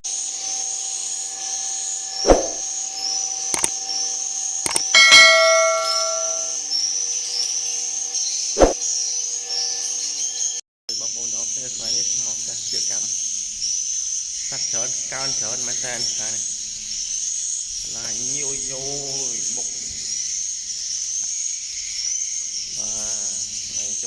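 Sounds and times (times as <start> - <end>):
swiftlets chirping: 2.2 - 2.7, 3.5 - 3.8, 4.7 - 6.6
metallic clang ringing: 4.8 - 6.6.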